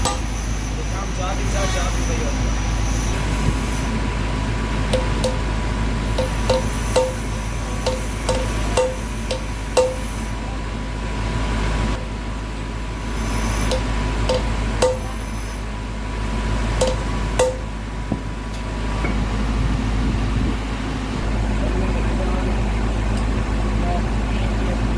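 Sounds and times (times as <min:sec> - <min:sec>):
hammer blows on metal: 0:00.0 - 0:02.2, 0:06.1 - 0:10.4, 0:13.5 - 0:15.6, 0:16.8 - 0:18.3
workshop hum: 0:00.0 - 0:24.9.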